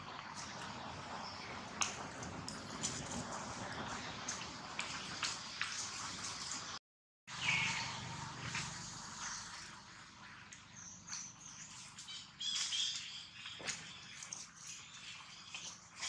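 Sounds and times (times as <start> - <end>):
birds chirping: 7.3 - 16.0.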